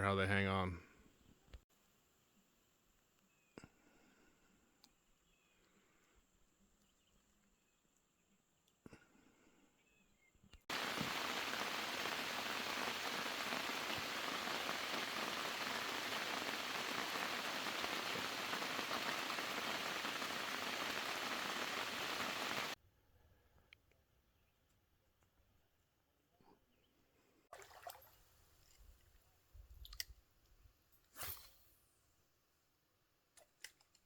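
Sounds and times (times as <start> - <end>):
heavy rain: 10.7 - 22.8.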